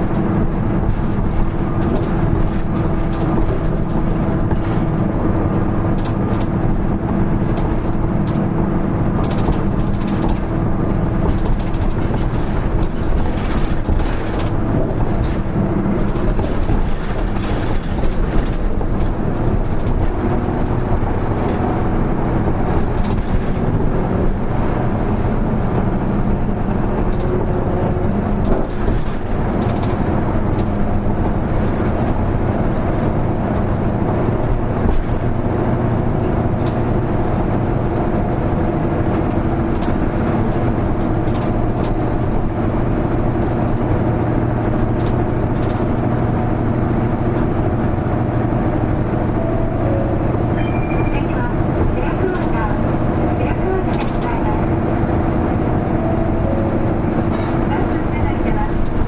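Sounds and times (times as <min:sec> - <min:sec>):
bus diesel engine: 0:00.0 - 0:59.0
road noise: 0:00.0 - 0:59.0
small rattles and clicks: 0:00.1 - 0:04.9, 0:05.8 - 0:32.1, 0:36.2 - 0:37.1, 0:39.1 - 0:47.9, 0:52.1 - 0:54.8.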